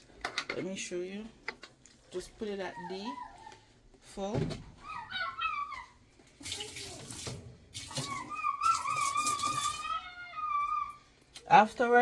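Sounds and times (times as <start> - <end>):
vinegar pouring: 6.4 - 9.8.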